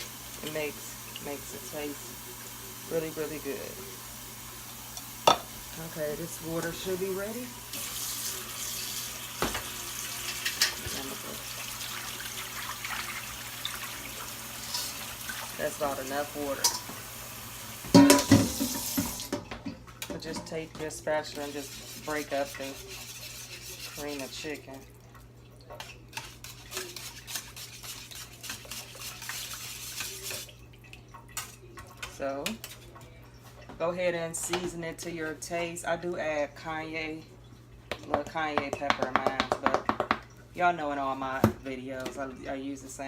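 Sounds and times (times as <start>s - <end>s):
water pouring into a pan: 0.0s - 5.9s, 6.8s - 19.4s, 21.3s - 32.1s
spatula scraping in a pan: 13.9s - 15.6s, 20.8s - 24.8s, 25.8s - 30.5s.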